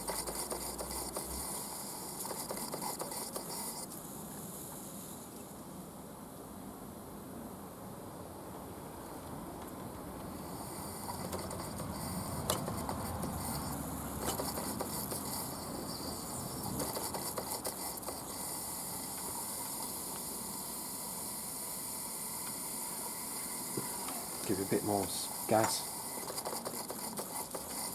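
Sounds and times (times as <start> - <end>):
steam engine hissing: 0.0 - 3.9, 10.4 - 27.9.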